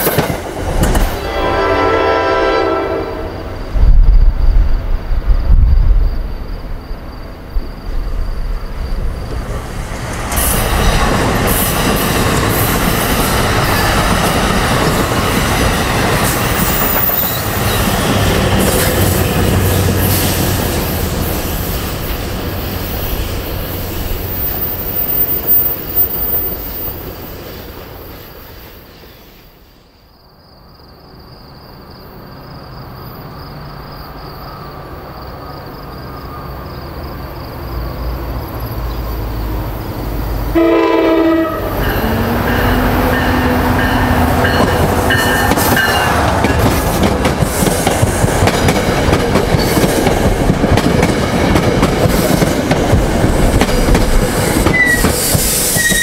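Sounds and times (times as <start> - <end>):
train wheels rumbling on rail: 0.0 - 30.0, 31.7 - 56.0
distant train: 0.0 - 56.0
high-pitched wheel squeal: 54.7 - 56.0.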